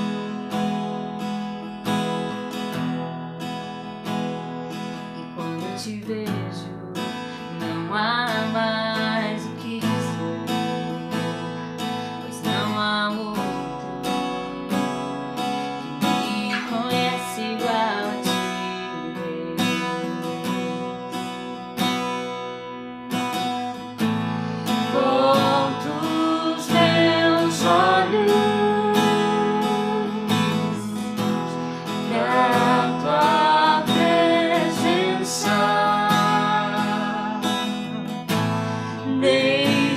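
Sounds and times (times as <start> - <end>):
acoustic guitar strumming: 0.0 - 39.9
person singing worship song: 24.6 - 38.1, 38.9 - 39.9.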